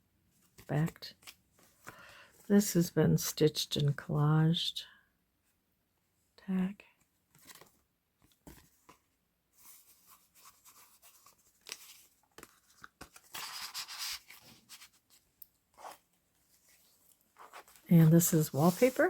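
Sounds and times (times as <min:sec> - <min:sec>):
paper rustling and crinkling: 0:07.3 - 0:19.0.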